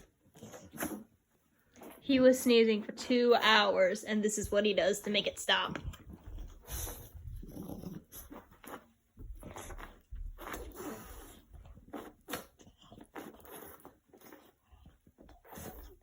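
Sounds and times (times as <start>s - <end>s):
puppy snorting and sneezing: 0.0s - 1.2s, 9.4s - 14.6s, 15.4s - 16.0s.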